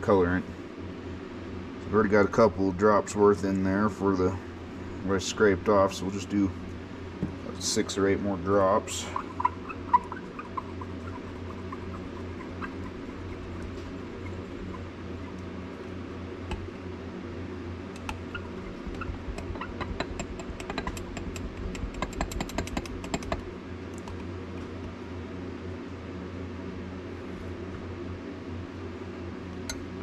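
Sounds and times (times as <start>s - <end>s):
steady low hum: 0.0s - 30.0s
quick light clicks and taps: 18.9s - 24.9s.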